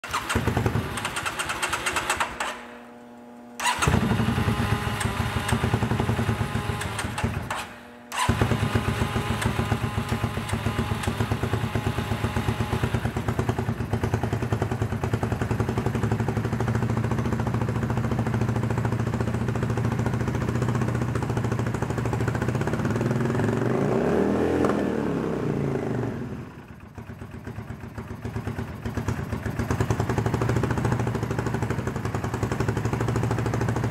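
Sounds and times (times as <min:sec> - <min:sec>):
motorcycle engine running: 0:00.0 - 0:33.9
engine throttle blip: 0:03.6 - 0:11.8.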